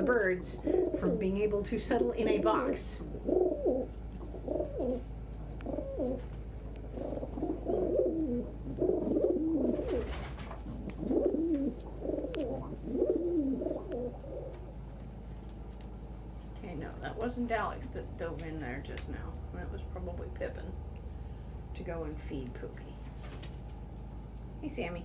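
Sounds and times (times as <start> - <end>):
pigeons cooing: 0.0 - 15.2
rustle: 5.8 - 7.9.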